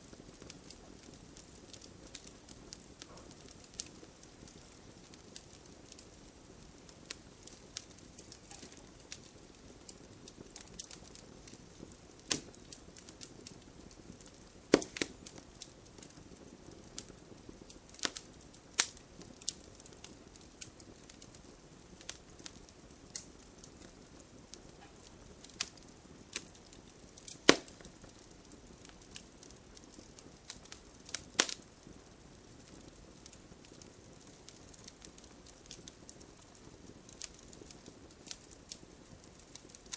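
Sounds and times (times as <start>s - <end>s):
faint steady hiss: 0.0s - 39.9s
wood fire crackling: 0.0s - 39.9s.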